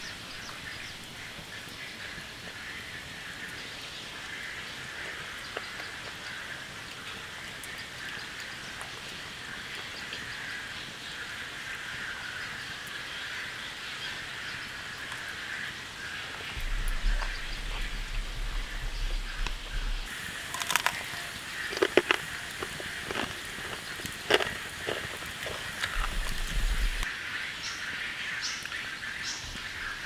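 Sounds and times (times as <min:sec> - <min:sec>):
steady rain hiss: 0:00.0 - 0:30.0
low hum: 0:16.6 - 0:23.6.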